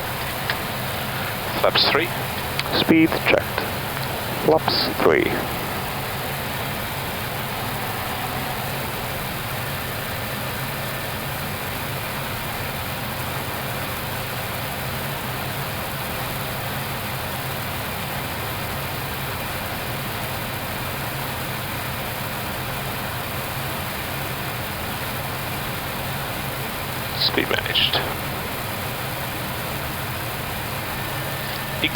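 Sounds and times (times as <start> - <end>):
low steady hum: 0.0 - 12.6
airflow rush in cockpit: 0.0 - 31.9.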